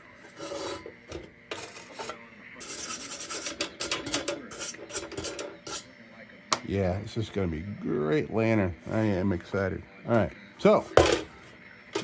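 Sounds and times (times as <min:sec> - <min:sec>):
scraping paint off tin: 0:00.2 - 0:05.9.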